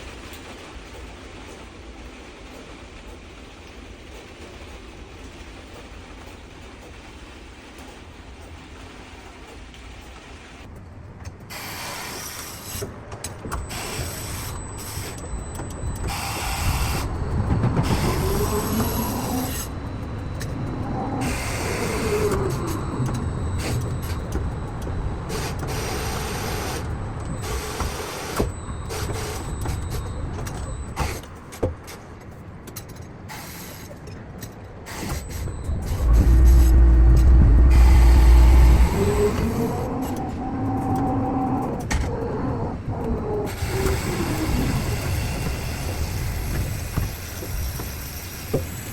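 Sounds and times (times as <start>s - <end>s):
motor whine: 13.6s - 31.0s, 35.0s - 41.8s
machinery rattling: 34.6s - 42.0s.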